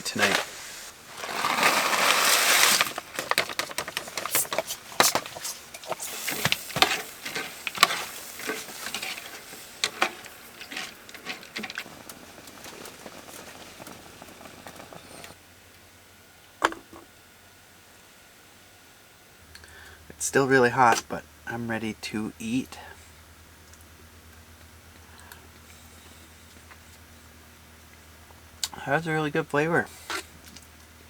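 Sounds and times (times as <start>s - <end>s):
rushing rustling noise: 0.0s - 15.4s
clicks and crackles: 0.1s - 15.4s.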